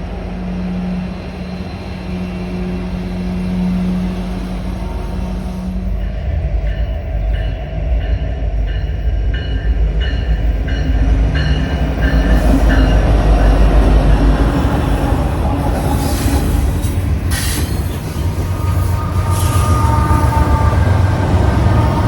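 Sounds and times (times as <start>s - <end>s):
train passing rumble: 0.0s - 22.0s.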